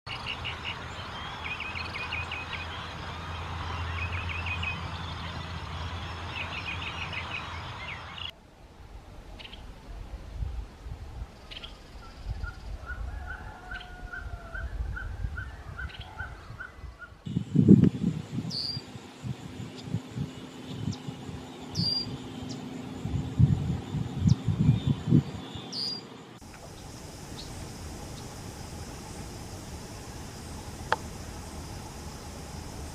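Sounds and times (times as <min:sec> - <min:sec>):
birds chirping trills: 0:00.1 - 0:08.3, 0:15.4 - 0:32.9
bird evenly spaced notes: 0:17.3 - 0:32.9
sharp high bird calls: 0:20.5 - 0:22.8.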